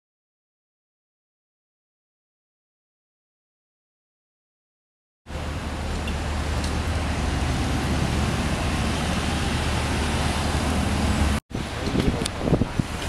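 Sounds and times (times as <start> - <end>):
fire truck engine rumbling: 5.3 - 13.0
gusty uneven noise: 5.4 - 13.0.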